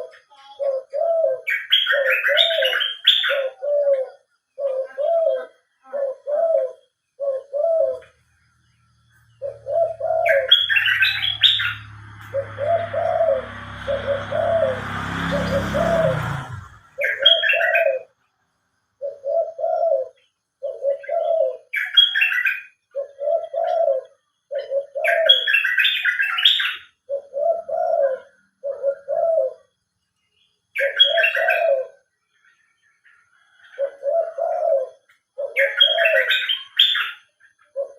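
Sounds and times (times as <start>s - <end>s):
doves cooing: 0.0s - 8.3s, 9.0s - 18.2s, 19.0s - 29.8s, 30.8s - 32.5s, 33.2s - 37.9s
bird chirping: 0.0s - 37.9s
low hissing drone rising in pitch: 9.6s - 17.2s.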